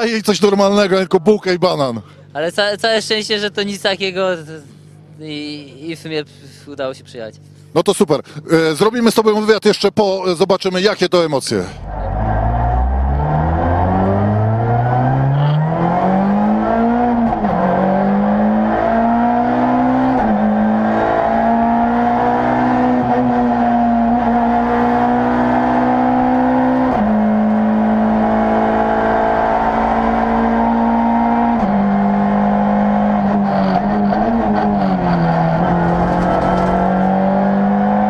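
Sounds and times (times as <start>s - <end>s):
car engine accelerating through gears: 11.8s - 38.0s.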